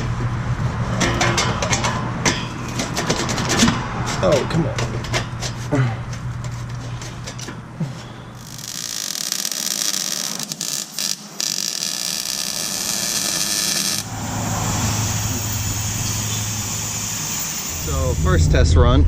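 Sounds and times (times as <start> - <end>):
welder hissing: 8.3 - 18.4
low hum: 12.2 - 19.0.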